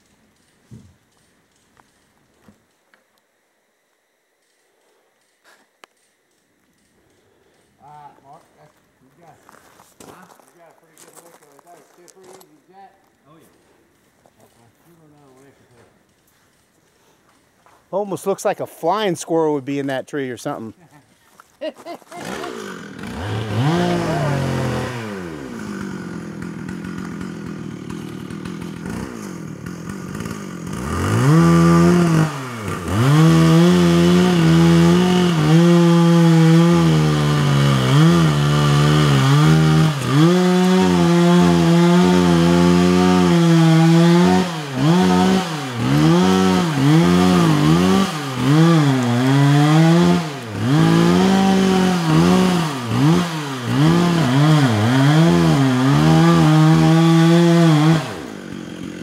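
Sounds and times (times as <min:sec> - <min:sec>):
chainsaw cutting wood: 0:22.1 - 0:59.0.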